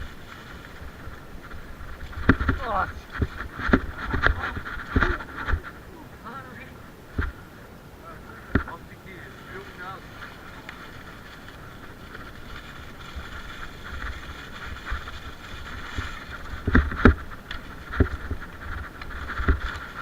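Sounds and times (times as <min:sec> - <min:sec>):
bike rolling rattle: 0:00.0 - 0:07.7, 0:08.3 - 0:20.0
sharp knocks over bumps: 0:01.1 - 0:05.8.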